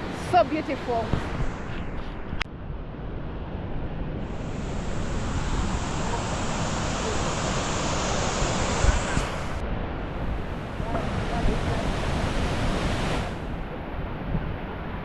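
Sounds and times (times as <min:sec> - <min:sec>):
waterfall rapids roaring: 0:04.2 - 0:13.9.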